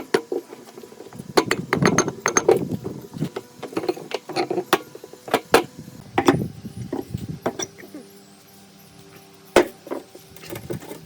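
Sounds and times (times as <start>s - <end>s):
metal parts clicking and clanking: 0.0s - 8.1s.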